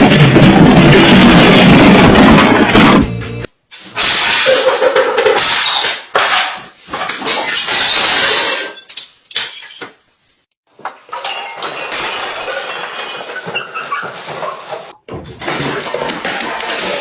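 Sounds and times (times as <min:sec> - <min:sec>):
household objects clattering: 0:00.0 - 0:03.1, 0:10.7 - 0:17.0.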